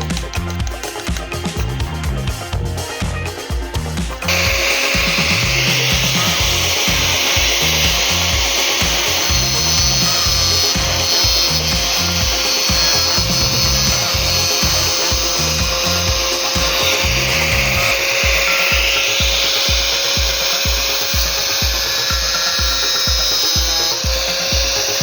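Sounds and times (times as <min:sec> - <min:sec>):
angle grinder cutting metal: 0:00.0 - 0:25.0
background music with bass: 0:00.0 - 0:25.0.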